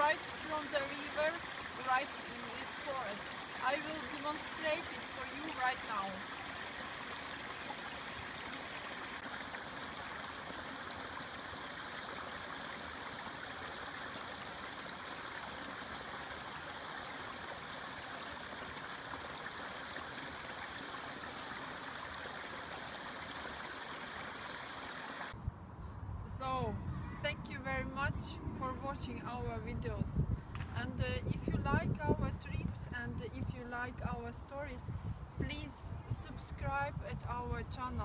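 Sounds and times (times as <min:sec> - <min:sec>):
river flowing: 0:00.0 - 0:25.4.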